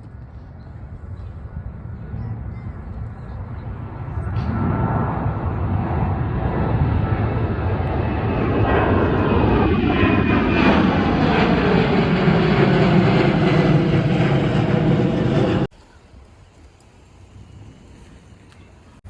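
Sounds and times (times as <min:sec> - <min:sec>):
jet airliner engine roar: 0:00.0 - 0:15.7
jet engine whine falling in pitch: 0:01.9 - 0:15.7.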